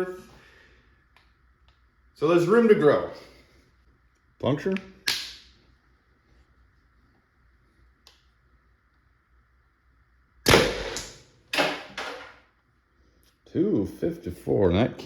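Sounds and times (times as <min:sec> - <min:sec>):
gas pistol cracks: 0:05.0 - 0:05.5.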